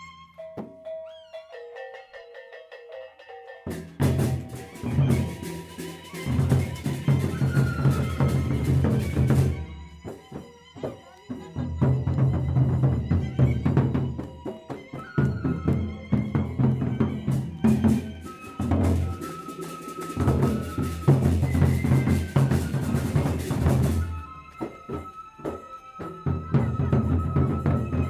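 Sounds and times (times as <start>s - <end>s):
flute holding long high notes: 0.0s - 1.4s, 4.0s - 11.4s, 14.2s - 28.0s
big drums beating: 3.7s - 28.0s.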